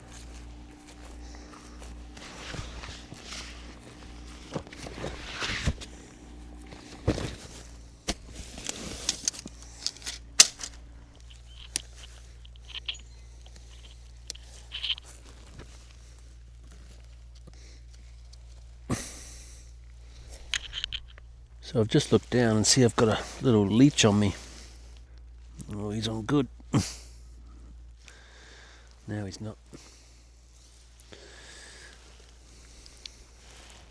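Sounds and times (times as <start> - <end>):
handling rustles: 0.0 - 18.9
steady low hum: 0.0 - 33.9
sharp clicks: 8.6 - 13.0.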